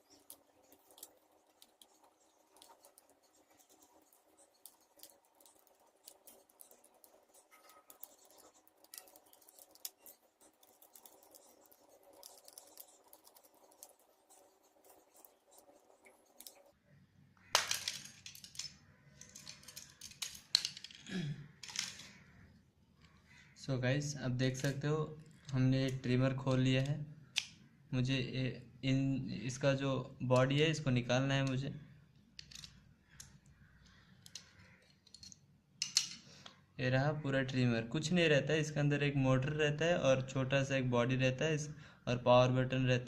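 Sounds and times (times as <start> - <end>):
screwdriver clicking and scratching: 0.0 - 16.8, 17.6 - 21.0, 32.3 - 36.2.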